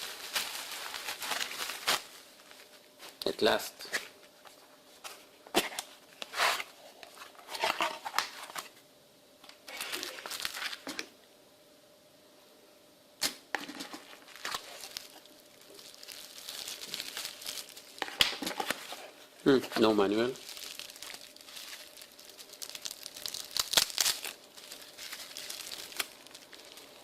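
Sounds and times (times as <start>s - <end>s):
packaging crinkling and rustling: 0.0s - 3.2s, 9.7s - 11.1s, 13.6s - 27.0s.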